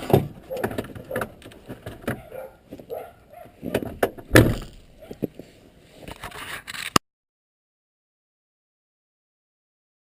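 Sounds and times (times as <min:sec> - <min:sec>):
heavy thump: 0:03.8 - 0:04.8.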